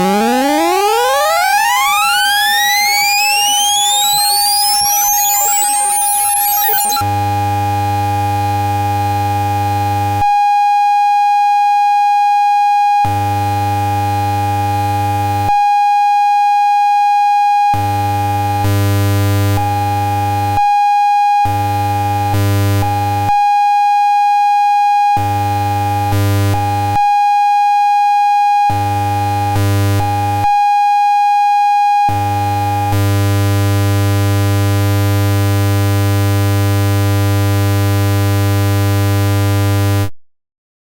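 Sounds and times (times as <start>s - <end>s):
buzzy low electronic tone: 0.0s - 7.0s
pure electronic tone: 0.0s - 7.0s.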